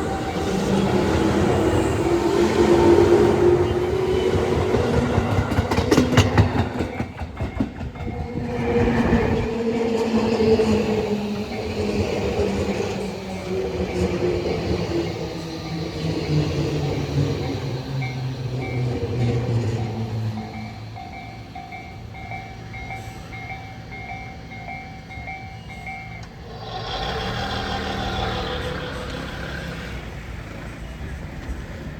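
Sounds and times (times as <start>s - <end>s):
electric train hum: 0.0s - 31.9s
train wheels clacking over rail joints: 4.2s - 9.1s, 26.2s - 30.2s
vehicle running noise: 26.5s - 31.2s.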